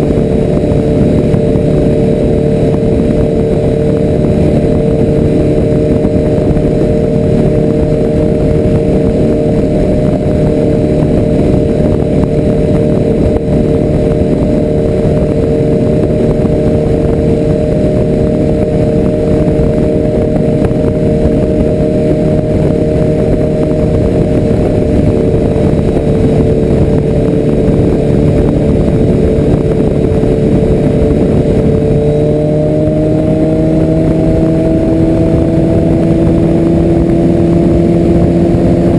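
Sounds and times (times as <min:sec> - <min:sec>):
low rumble: 0:00.0 - 0:38.9
motorcycle engine running: 0:00.0 - 0:38.9.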